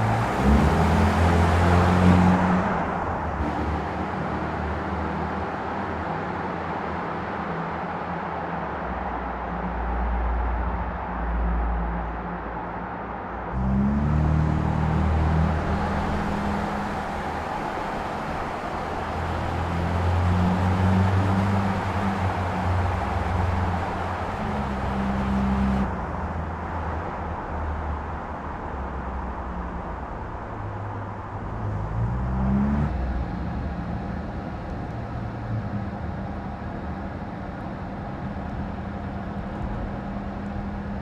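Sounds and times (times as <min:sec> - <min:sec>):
road noise: 0:00.0 - 0:41.0
car engine running: 0:13.6 - 0:27.4.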